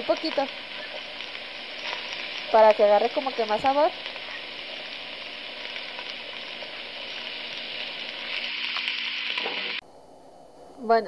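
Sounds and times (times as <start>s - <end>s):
chicken sizzling in a pan: 0.0s - 9.8s.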